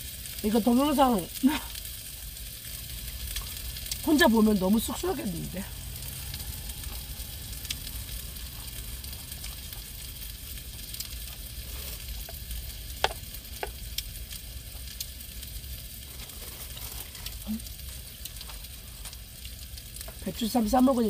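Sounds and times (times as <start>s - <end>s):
meat sizzling in a frying pan: 0.0s - 21.0s.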